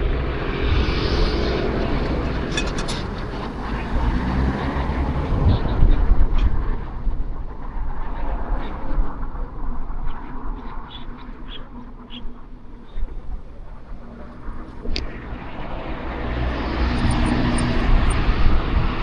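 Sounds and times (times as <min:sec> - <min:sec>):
train rumbling past: 0:00.0 - 0:06.2.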